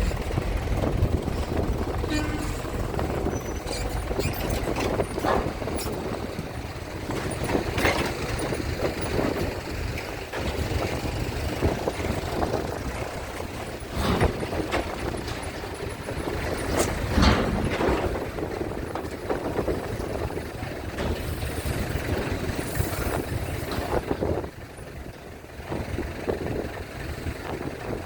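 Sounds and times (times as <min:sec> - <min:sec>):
metal knocks and clanks: 0:00.0 - 0:21.5
truck engines rumbling: 0:00.0 - 0:28.0.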